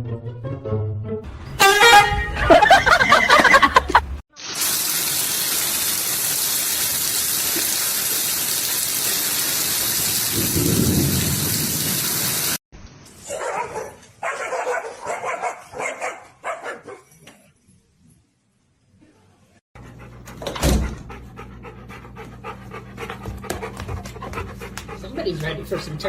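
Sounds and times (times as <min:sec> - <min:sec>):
dog barking: 0:13.3 - 0:17.2.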